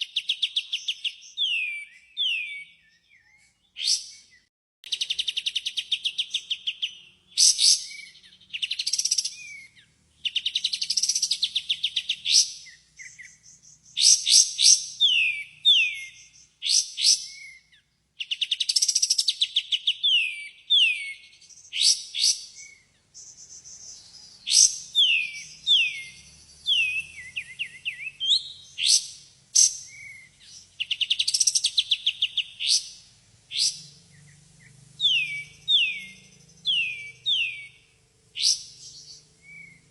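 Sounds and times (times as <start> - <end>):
bird downward whistled notes: 24.4 - 30.3, 33.5 - 38.8, 39.4 - 39.8.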